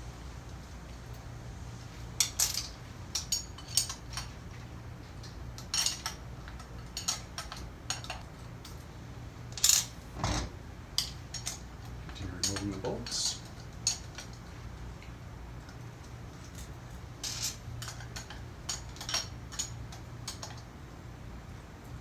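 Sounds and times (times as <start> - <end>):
metal tools clinking: 2.2 - 4.3, 11.0 - 14.4.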